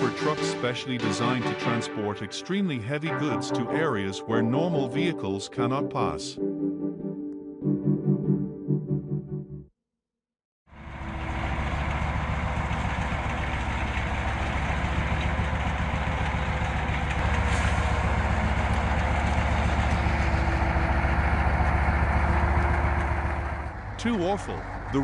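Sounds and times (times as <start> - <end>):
heavy truck engine throbbing: 10.7 - 25.0.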